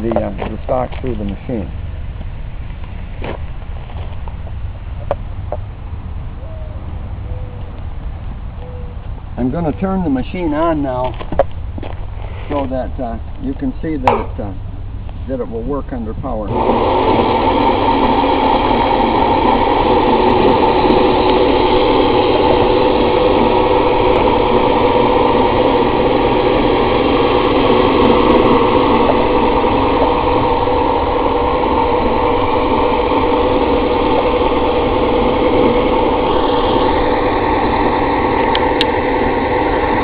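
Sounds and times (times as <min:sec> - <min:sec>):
thickness planer running: 0:15.3 - 0:40.0.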